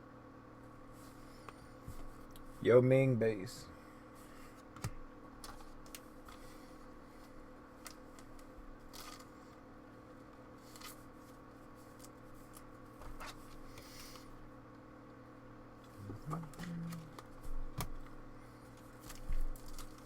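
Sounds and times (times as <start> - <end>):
wrappers rustling: 18.8 - 20.0.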